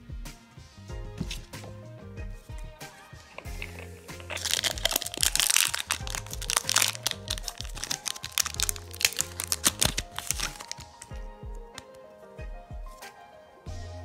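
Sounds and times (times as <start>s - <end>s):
steady drum beat: 11.1s - 11.7s.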